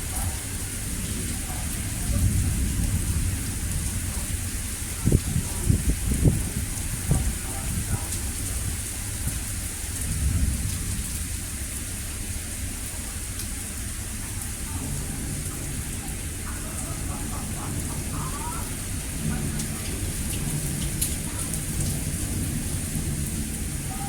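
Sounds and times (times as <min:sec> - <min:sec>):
rain falling: 0:00.0 - 0:24.0
thunder rumble: 0:00.0 - 0:24.0.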